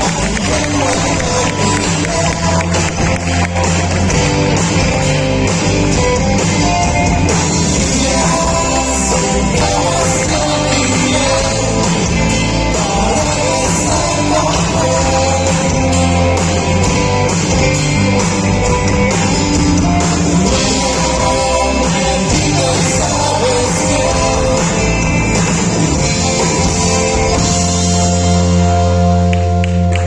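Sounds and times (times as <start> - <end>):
person singing: 0.0 - 4.8, 6.0 - 17.1, 20.2 - 27.4
live rock band playing: 0.0 - 30.0.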